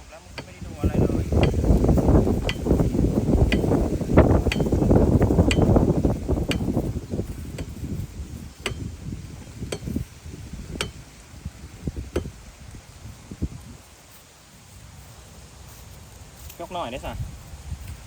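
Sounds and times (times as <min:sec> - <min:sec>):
wind buffeting microphone: 0:00.0 - 0:18.0
sharp ticks or taps: 0:03.5 - 0:03.7, 0:04.5 - 0:04.7, 0:05.4 - 0:05.7, 0:08.6 - 0:08.9.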